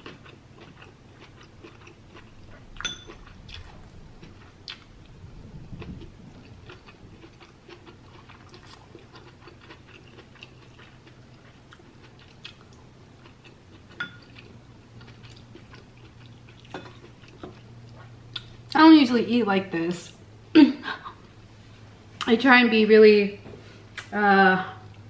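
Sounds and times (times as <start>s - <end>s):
close chewing of food: 0.0s - 18.7s.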